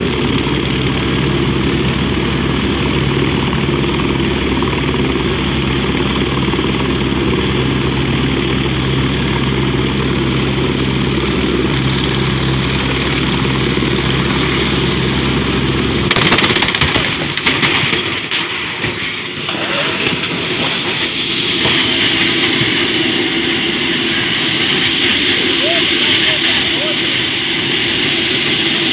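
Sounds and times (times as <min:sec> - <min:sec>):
helicopter rotor and engine drone: 0:00.0 - 0:28.9
sharp cracks: 0:16.1 - 0:20.4.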